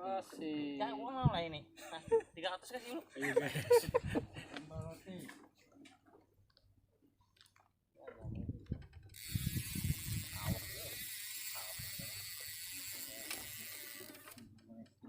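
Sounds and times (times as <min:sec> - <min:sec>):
fishing reel ratchet clicking: 0:08.8 - 0:15.0.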